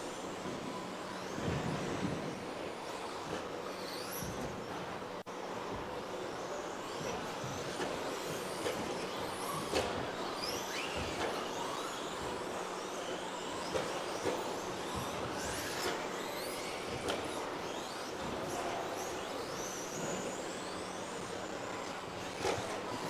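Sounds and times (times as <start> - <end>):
rc car motor whine: 0.0 - 23.0.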